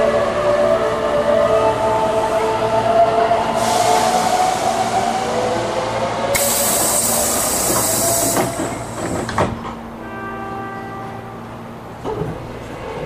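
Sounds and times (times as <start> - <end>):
compressed-air hiss: 6.3 - 9.0.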